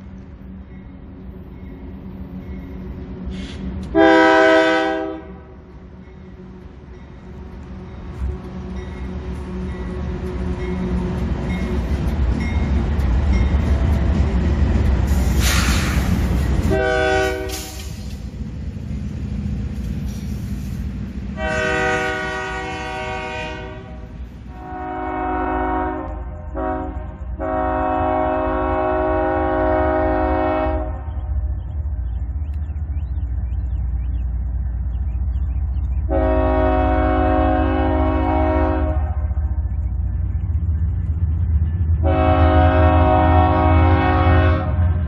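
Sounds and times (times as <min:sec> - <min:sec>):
freight train rumbling past: 0:00.0 - 0:45.0
brief air hiss: 0:03.3 - 0:03.7, 0:15.1 - 0:16.3, 0:17.5 - 0:18.2, 0:20.0 - 0:20.9
locomotive air horn blasts: 0:03.3 - 0:05.6, 0:16.6 - 0:17.9, 0:21.4 - 0:31.1, 0:36.1 - 0:39.2, 0:42.0 - 0:45.0.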